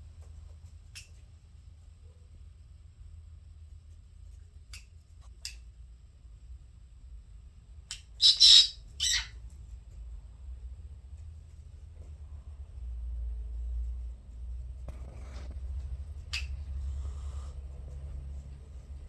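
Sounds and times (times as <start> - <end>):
parrot chirps and squawks: 7.9 - 9.4.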